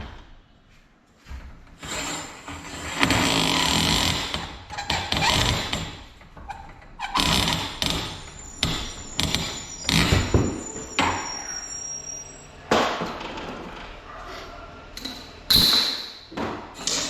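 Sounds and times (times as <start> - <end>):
metal knocks and clanks: 4.9 - 11.5.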